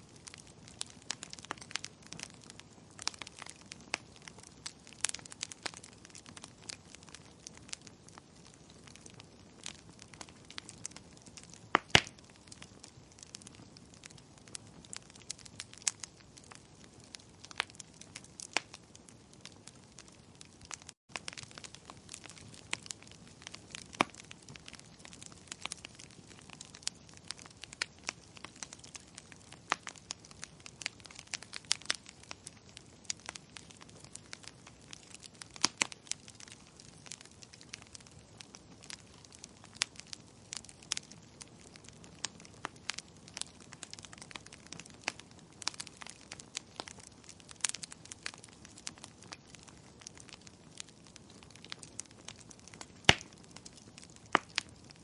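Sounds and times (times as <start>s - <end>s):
firewood crackling: 0.0s - 55.0s.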